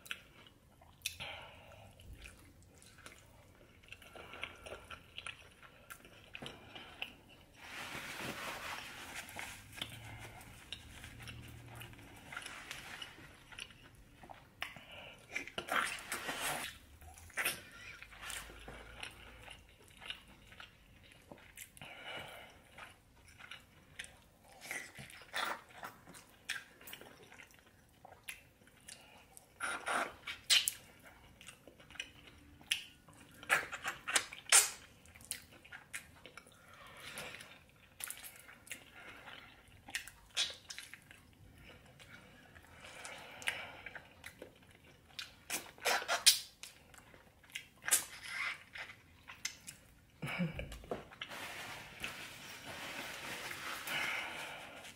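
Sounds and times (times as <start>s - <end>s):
person chewing and lip-smacking: 0.0s - 1.2s, 1.8s - 7.6s, 9.8s - 21.9s, 22.5s - 51.3s.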